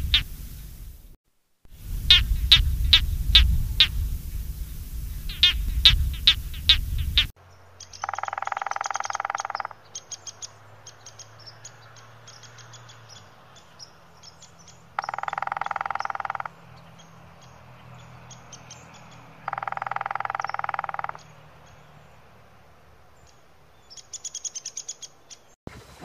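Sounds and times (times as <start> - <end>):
sharp downward-sweeping bird calls: 0.0 - 0.6, 5.3 - 13.3, 14.4 - 17.2, 18.3 - 21.4
low rumble: 0.0 - 7.3
woodpecker drumming on tree trunk: 8.0 - 9.8, 15.0 - 16.6, 19.4 - 21.3.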